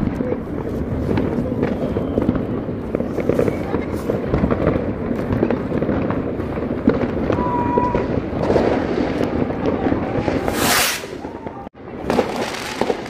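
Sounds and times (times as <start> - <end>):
fireworks crackling and banging: 0.0 - 13.0
loud firework hiss: 10.2 - 11.4.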